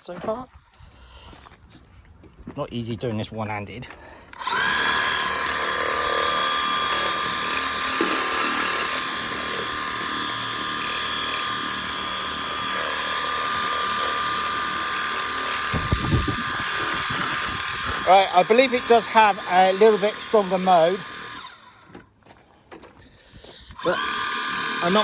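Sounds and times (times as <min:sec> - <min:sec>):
water jet hissing: 0:04.4 - 0:21.8, 0:23.8 - 0:25.0
pressure washer motor whine: 0:04.4 - 0:22.0, 0:23.8 - 0:25.0.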